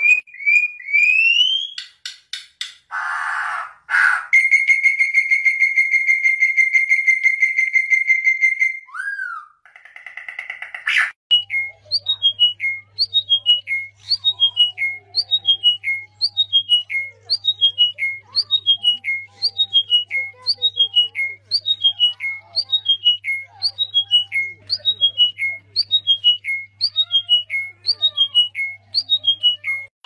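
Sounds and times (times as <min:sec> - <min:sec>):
bird trilling: 0:10.0 - 0:29.9.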